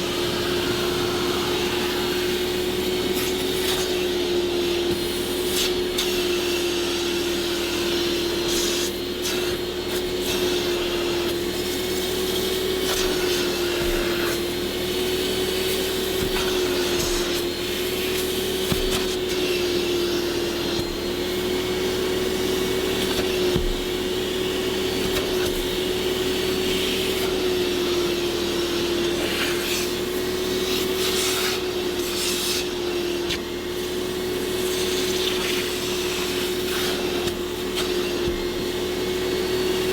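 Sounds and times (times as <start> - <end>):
brush scrubbing fabric: 8.4 - 21.4, 30.6 - 33.0.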